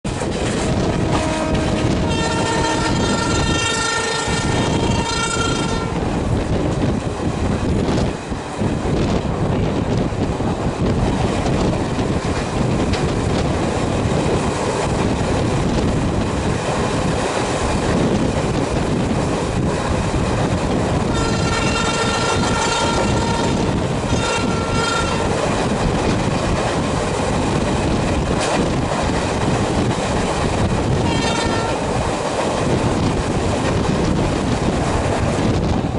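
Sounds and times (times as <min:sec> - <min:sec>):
train rumble and wheel clatter: 0:00.0 - 0:35.9
train horn blasts: 0:00.8 - 0:06.1, 0:21.0 - 0:25.4, 0:30.9 - 0:31.9.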